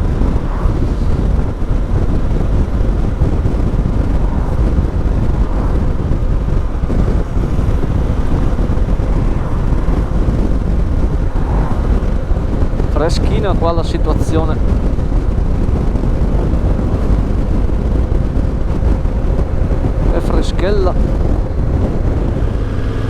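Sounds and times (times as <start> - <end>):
motorcycle engine running: 0.0 - 23.0
wind buffeting microphone: 0.0 - 23.0.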